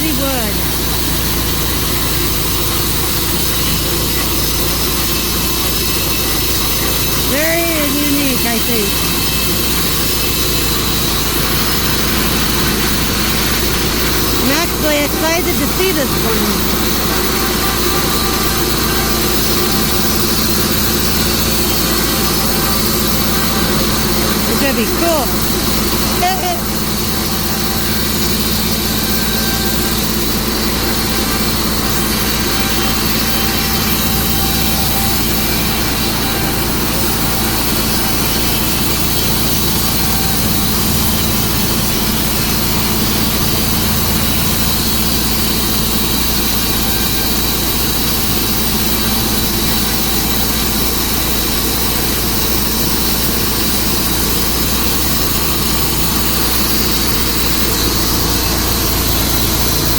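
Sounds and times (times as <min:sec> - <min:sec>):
saw blade whining through log: 0:00.0 - 0:59.9.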